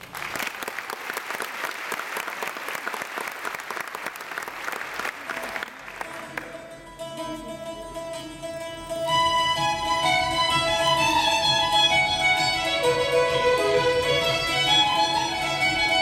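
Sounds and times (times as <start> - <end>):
audience applauding: 0.0 - 6.6
dance music: 8.4 - 16.0.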